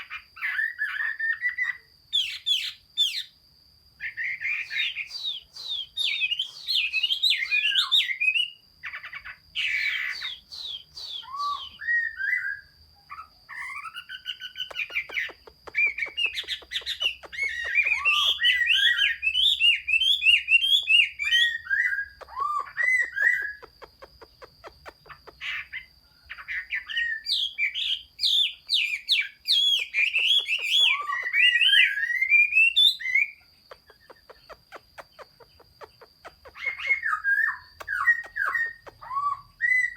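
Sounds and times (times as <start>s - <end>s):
songbird singing with trills: 0.0s - 39.9s.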